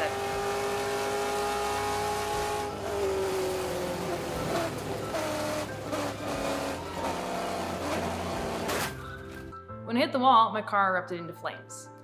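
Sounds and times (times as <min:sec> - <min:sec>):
race car engine running: 0:00.0 - 0:09.4.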